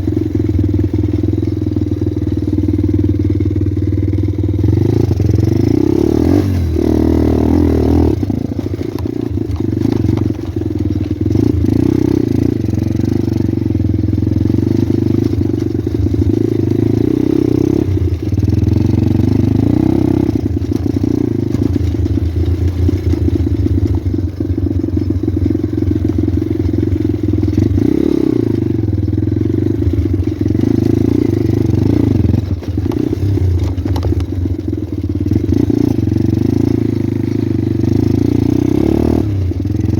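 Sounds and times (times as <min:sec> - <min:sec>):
motorbike engine revving: 0:00.0 - 0:39.9
rattles and knocks: 0:08.3 - 0:11.7, 0:32.1 - 0:35.0.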